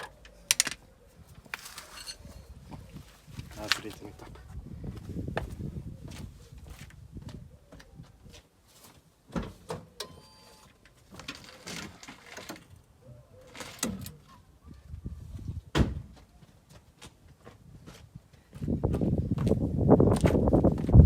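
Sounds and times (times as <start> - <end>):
tools knocking on metal parts: 0.0 - 0.8
thin metallic ringing: 1.8 - 2.5.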